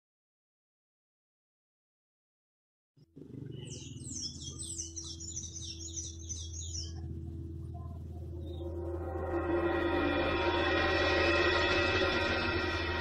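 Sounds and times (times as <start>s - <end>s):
birds chirping: 3.0s - 10.6s
steady low drone: 3.1s - 13.0s.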